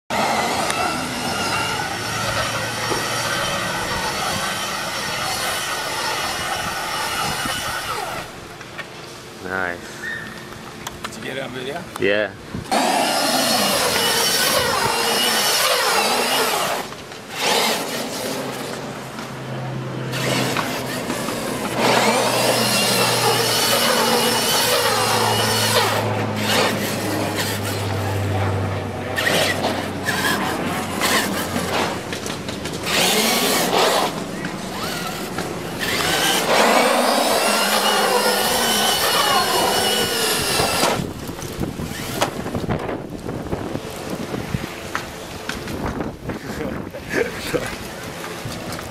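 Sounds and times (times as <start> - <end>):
toy car motor whining: 0.1 - 8.4, 12.7 - 18.8, 20.1 - 28.3, 29.2 - 32.0, 32.8 - 42.4.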